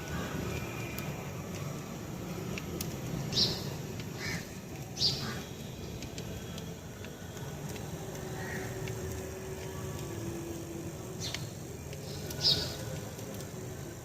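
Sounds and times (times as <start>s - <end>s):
bird chirping: 11.2s - 12.9s.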